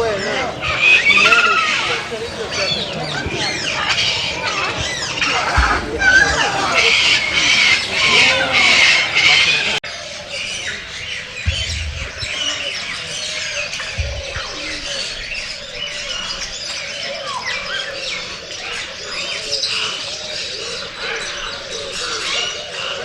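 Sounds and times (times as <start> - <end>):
small birds chirping: 0.0 - 23.0
low thumps: 2.1 - 9.8, 10.5 - 16.6.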